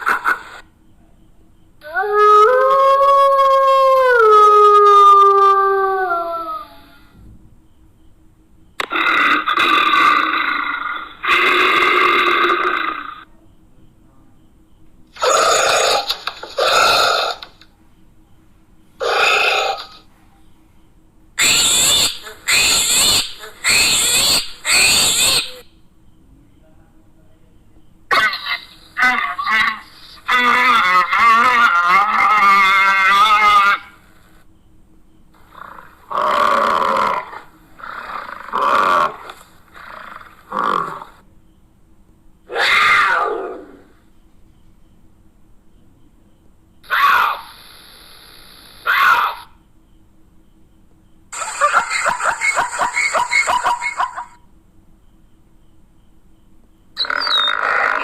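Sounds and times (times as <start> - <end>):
animal calls: 8.8 - 13.3, 15.2 - 17.6, 19.0 - 20.1, 21.4 - 25.8, 28.1 - 34.1, 35.4 - 41.2, 42.5 - 44.1, 46.8 - 48.0, 48.7 - 49.6, 51.3 - 54.4, 57.0 - 58.0
big cat roaring: 35.6 - 41.1, 42.5 - 43.9.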